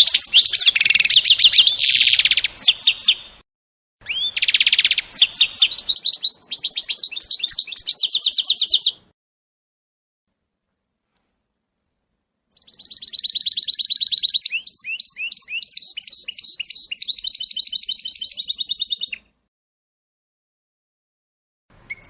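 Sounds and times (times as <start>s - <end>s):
songbird trilling: 0.0s - 3.4s, 4.0s - 9.0s, 12.5s - 19.2s.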